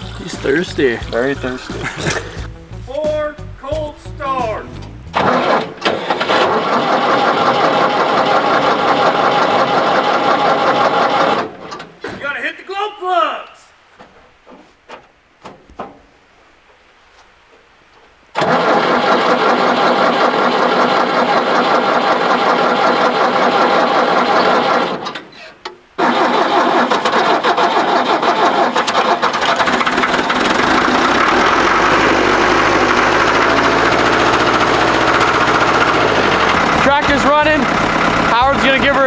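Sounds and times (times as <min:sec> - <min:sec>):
diesel engine running: 0:00.0 - 0:05.6, 0:29.0 - 0:39.0
tractor starter cranking: 0:00.0 - 0:11.5, 0:18.4 - 0:25.3, 0:26.0 - 0:39.0.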